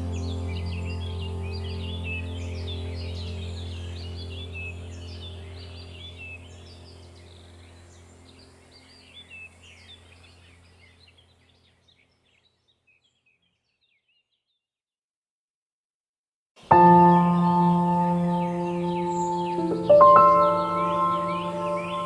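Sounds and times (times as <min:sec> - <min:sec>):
low steady hum: 0:00.0 - 0:11.2
small birds chirping: 0:00.0 - 0:14.6, 0:16.7 - 0:22.0.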